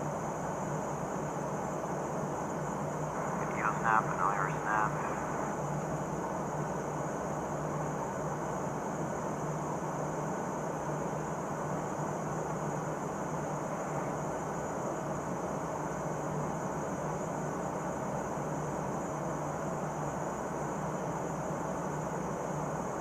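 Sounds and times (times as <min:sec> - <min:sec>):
aircraft cabin drone: 0:02.9 - 0:08.6.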